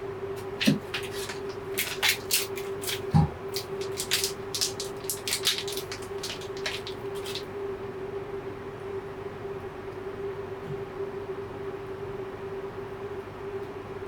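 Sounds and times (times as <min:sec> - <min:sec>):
dull thumps: 0:00.4 - 0:04.0
raindrops tapping on roof: 0:00.6 - 0:07.4.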